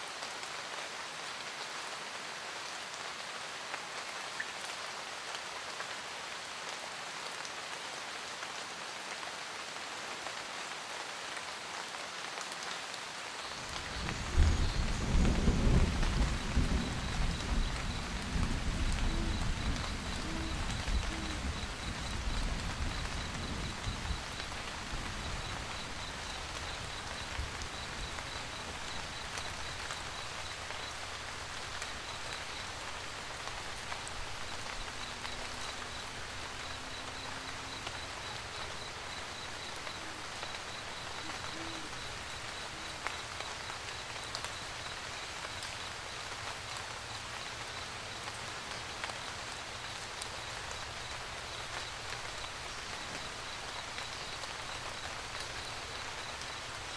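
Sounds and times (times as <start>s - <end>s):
rain pattering on a roof: 0.0s - 56.9s
faint high-pitched ticking: 13.6s - 56.9s.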